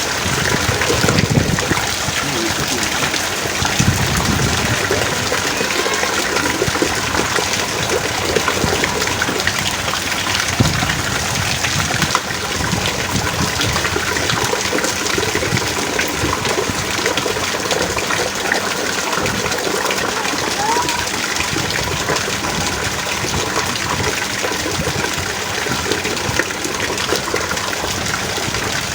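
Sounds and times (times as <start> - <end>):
heavy rain falling: 0.0 - 28.9.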